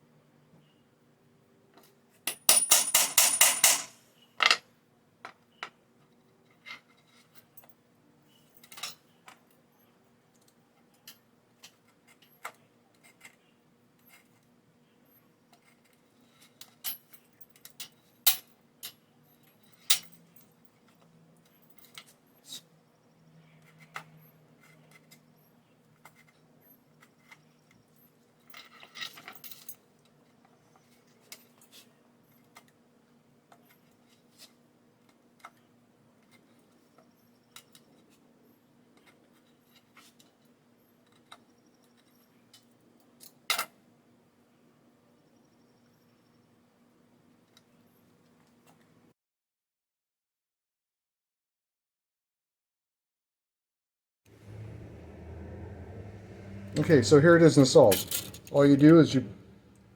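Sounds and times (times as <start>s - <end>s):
hammer tapping metal tool: 2.3s - 4.6s.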